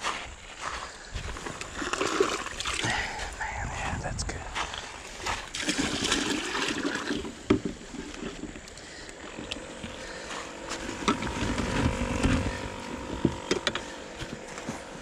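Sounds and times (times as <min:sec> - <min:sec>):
faint steady hum: 0:00.0 - 0:15.0
creek water splashing: 0:01.4 - 0:03.3, 0:05.0 - 0:15.0
sharp knocks and clicks: 0:13.1 - 0:14.8.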